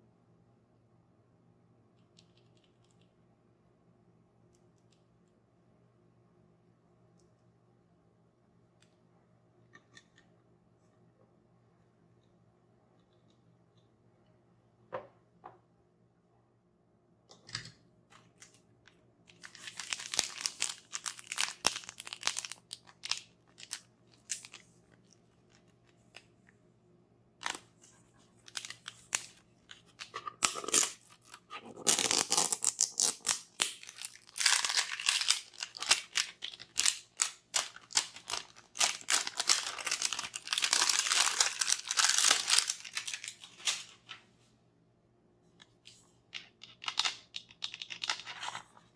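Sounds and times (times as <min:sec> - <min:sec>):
packaging crinkling and ripping: 0:19.3 - 0:24.6, 0:28.4 - 0:44.2.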